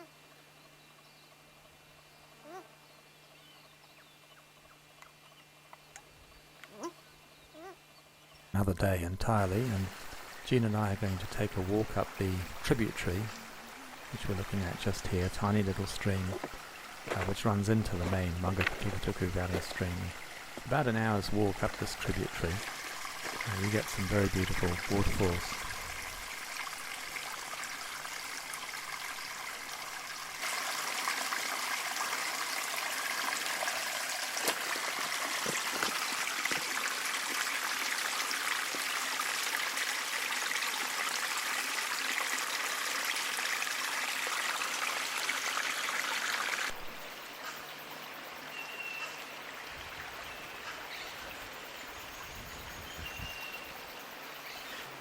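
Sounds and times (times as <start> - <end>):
stream trickling over rocks: 9.2 - 47.2.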